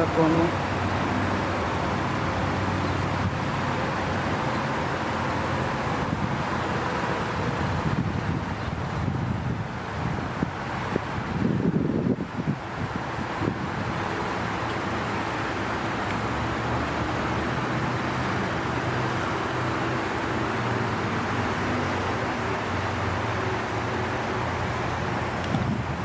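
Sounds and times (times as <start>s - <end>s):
car road noise: 0.0s - 26.0s
low engine hum: 0.0s - 26.0s.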